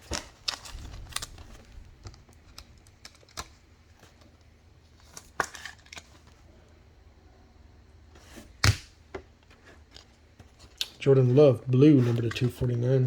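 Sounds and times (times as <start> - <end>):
trading cards being handled: 9.6 - 13.0.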